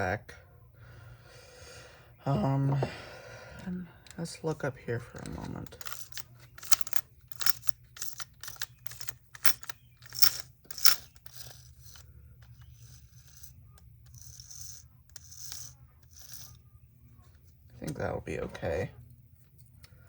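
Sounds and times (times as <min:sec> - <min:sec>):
tools clicking and scraping: 0:05.1 - 0:16.6
scratchy rubbing: 0:05.8 - 0:16.7.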